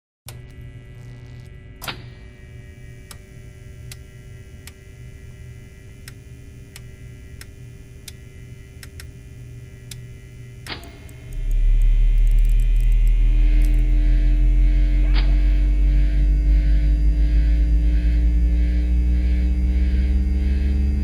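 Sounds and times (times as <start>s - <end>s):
electrical mains hum: 0.3s - 21.0s
sharp clicks: 8.8s - 9.1s, 9.8s - 13.9s.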